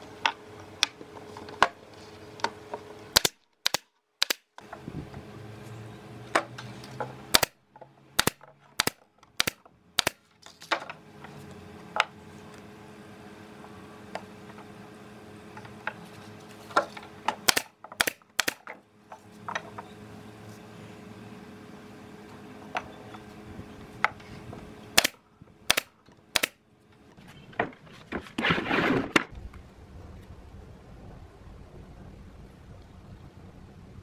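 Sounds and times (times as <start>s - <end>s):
steady low hum: 0.0s - 34.0s
wood and tools knocking: 6.3s - 12.2s, 15.5s - 19.9s, 24.0s - 24.7s, 25.7s - 28.4s
short rushing noise: 27.2s - 32.3s.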